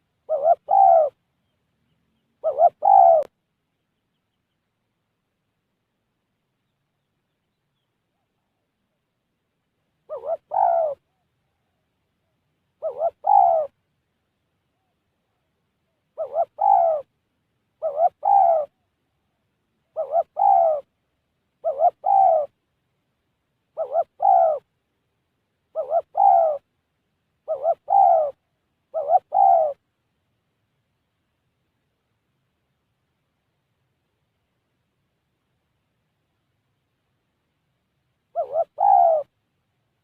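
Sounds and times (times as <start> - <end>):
dove cooing: 0.0 - 1.2, 2.2 - 3.3, 10.0 - 13.8, 14.7 - 17.1, 17.8 - 18.9, 19.8 - 20.9, 21.6 - 22.6, 23.7 - 24.7, 25.7 - 26.7, 27.4 - 29.8, 38.3 - 39.4.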